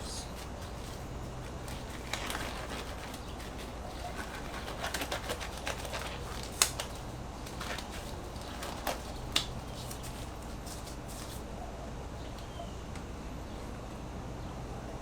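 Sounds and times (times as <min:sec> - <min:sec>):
hands clicking and rustling: 0:00.0 - 0:11.5
low steady hum: 0:00.0 - 0:15.0.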